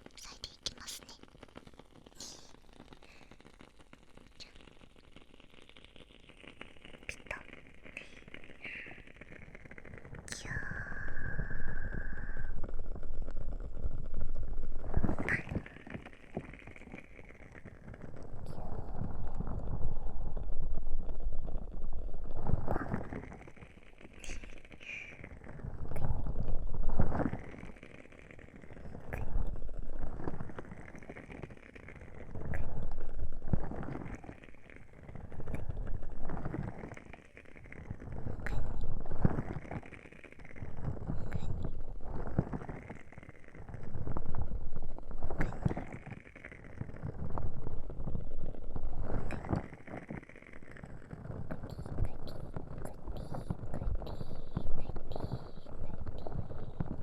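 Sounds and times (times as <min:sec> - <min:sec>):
candle crackling: 0:00.0 - 0:57.0
muffled rubbing on microphone: 0:46.8 - 0:57.0.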